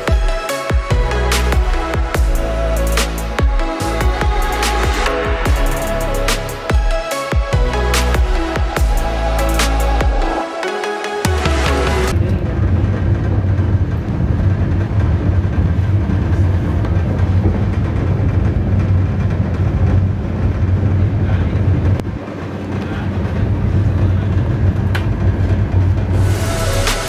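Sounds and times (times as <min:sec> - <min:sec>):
train wheels rumbling on bridge: 0:12.2 - 0:26.2.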